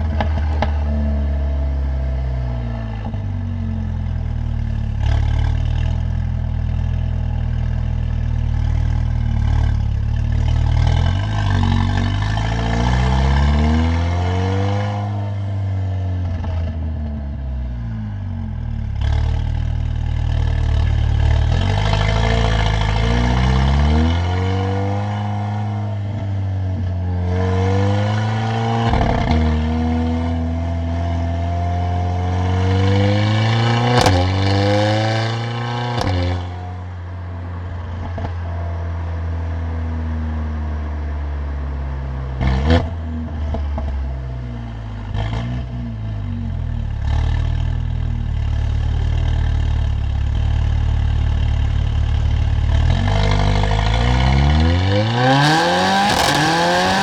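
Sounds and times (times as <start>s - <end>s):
car engine accelerating: 0.0s - 57.0s
exhaust cracks: 33.7s - 39.1s, 42.3s - 57.0s.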